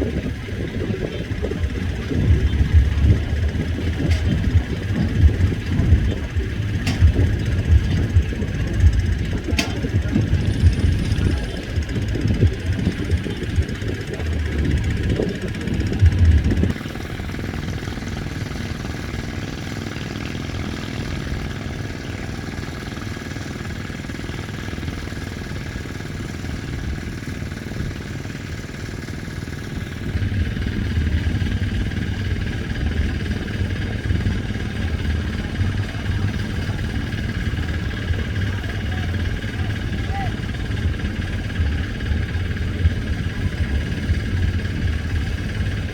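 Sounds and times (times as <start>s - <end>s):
constant high tone: 0.0s - 18.5s
boat engines droning: 0.0s - 45.9s.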